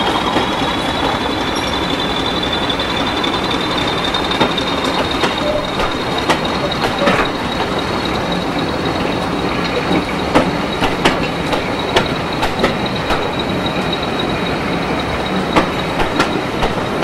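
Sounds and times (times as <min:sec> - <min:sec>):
high-pitched wheel squeal: 0:00.0 - 0:10.8
train wheels clicking over rail joints: 0:00.0 - 0:17.0.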